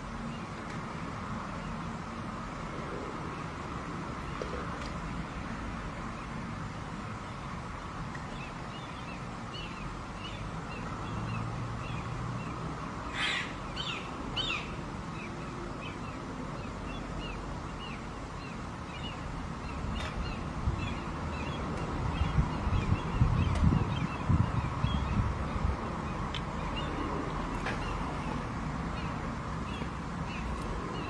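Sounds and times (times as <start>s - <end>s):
outdoor background: 0.0s - 31.0s
harsh bird calls: 8.3s - 25.3s.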